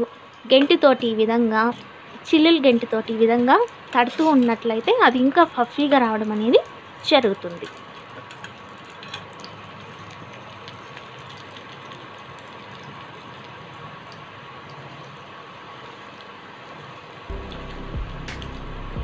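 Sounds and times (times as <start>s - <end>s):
oil sizzling in a pan: 0.0s - 19.0s
oil crackles: 2.8s - 15.3s
music: 17.3s - 19.0s.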